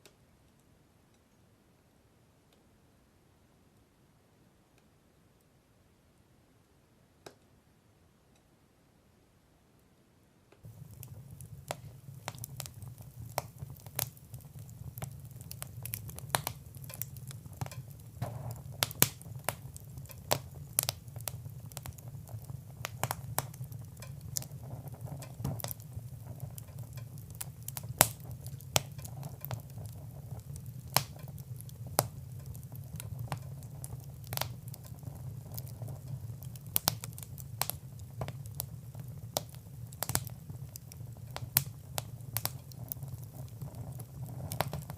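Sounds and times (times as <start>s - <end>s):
fire crackling and popping: 10.6s - 44.9s
soft hiss of fire: 10.6s - 44.9s.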